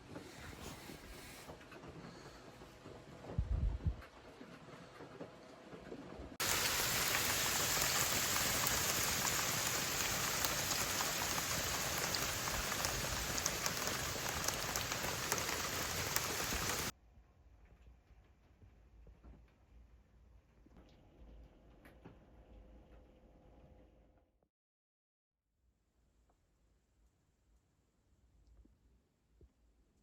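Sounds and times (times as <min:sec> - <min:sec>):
steady rain falling: 0:06.4 - 0:16.9.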